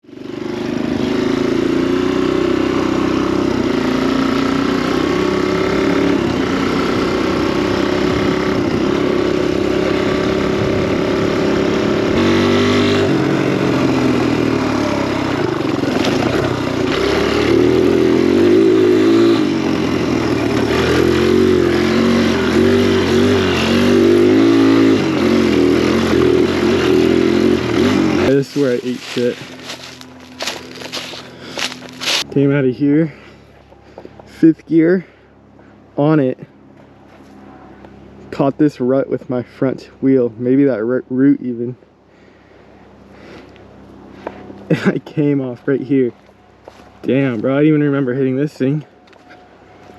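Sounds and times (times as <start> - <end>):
dirt bike engine revving: 0.0 - 33.4, 43.0 - 46.1.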